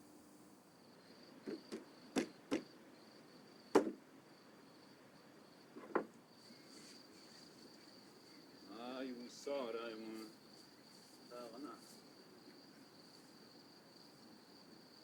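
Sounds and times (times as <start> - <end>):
high insect chirring: 0.8 - 14.9
short sharp knocks: 1.4 - 2.7, 3.8 - 4.0, 5.8 - 6.1.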